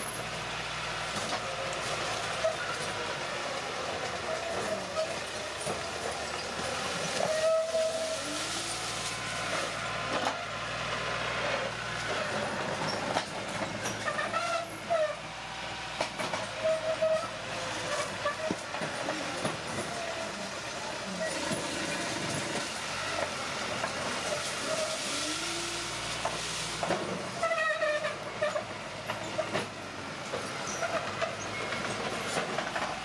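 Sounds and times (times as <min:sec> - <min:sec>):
bulldozer engine: 0:00.0 - 0:33.0
steel tracks clanking: 0:01.1 - 0:33.0
short metallic squeals: 0:06.3 - 0:08.7, 0:13.7 - 0:15.2, 0:16.5 - 0:18.6.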